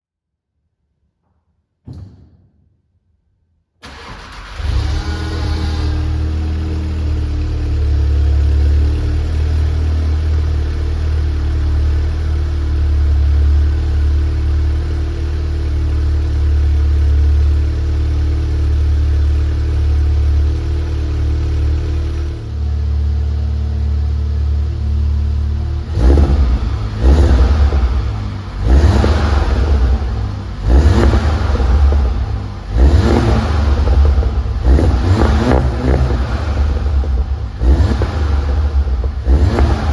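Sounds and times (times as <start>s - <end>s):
car engine idling: 3.8s - 39.9s
engine revving blips: 3.9s - 6.9s, 25.8s - 39.9s.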